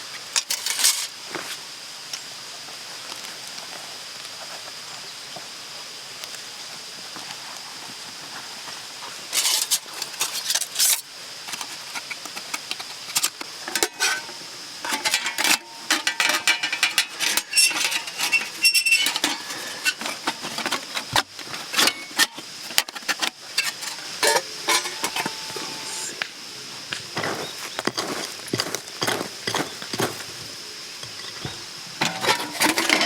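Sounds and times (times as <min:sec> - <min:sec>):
faint steady hiss: 0:00.0 - 0:33.0
cookware and utensils clinking: 0:13.7 - 0:20.8, 0:23.2 - 0:26.1, 0:32.0 - 0:33.0.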